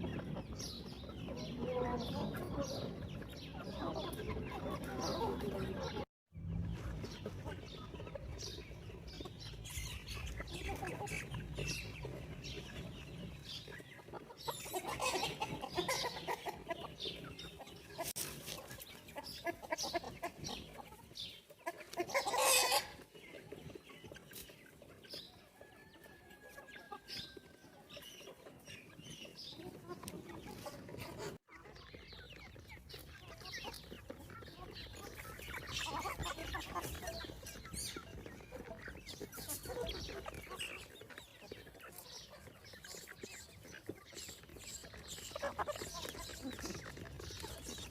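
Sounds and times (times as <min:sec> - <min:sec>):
chickens clucking: 0:00.0 - 0:47.9.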